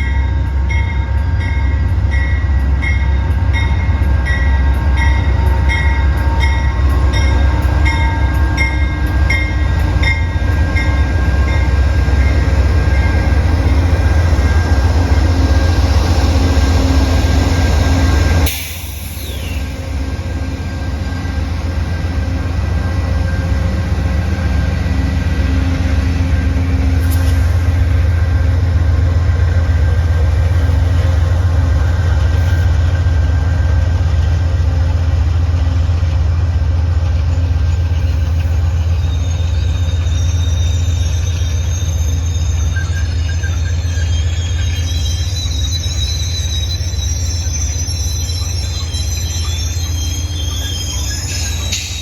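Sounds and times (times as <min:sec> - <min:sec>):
train rumbling: 0:00.0 - 0:52.0.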